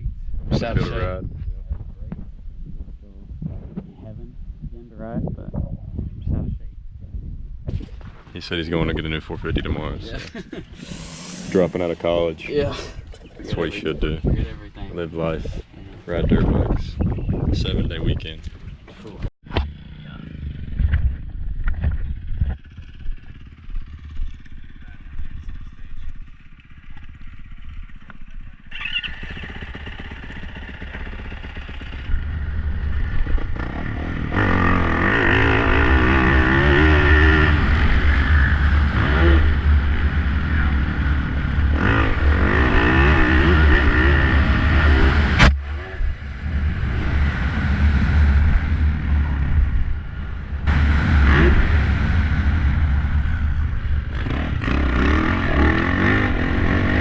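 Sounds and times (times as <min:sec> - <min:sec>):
wind rumble on microphone: 0:00.0 - 0:19.6, 0:20.3 - 0:28.7, 0:31.8 - 0:57.0
dirt bike engine revving: 0:09.7 - 0:14.0, 0:19.5 - 0:24.7, 0:28.7 - 0:57.0.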